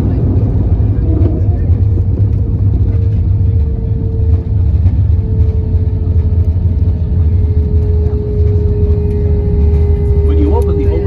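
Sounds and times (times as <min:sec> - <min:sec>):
airliner cabin engine rumble: 0:00.0 - 0:11.0
steady engine tone: 0:00.0 - 0:11.0.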